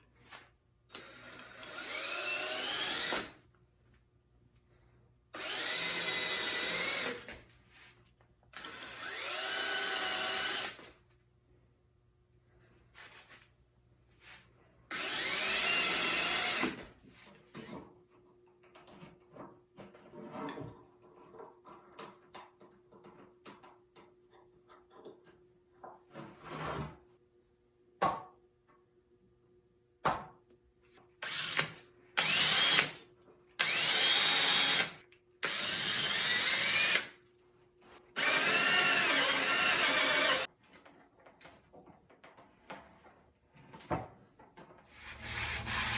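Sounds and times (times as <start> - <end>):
power drill boring wood: 0.9 - 3.3, 5.4 - 7.3, 8.6 - 10.9, 14.9 - 16.8, 31.2 - 33.0, 33.6 - 37.1, 38.2 - 40.5, 45.0 - 45.9.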